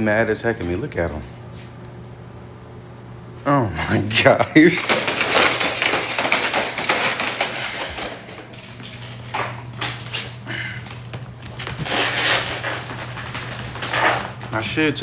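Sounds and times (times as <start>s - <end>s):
steady low hum: 0.0s - 15.0s
dogs rustling and scrabbling: 4.6s - 15.0s.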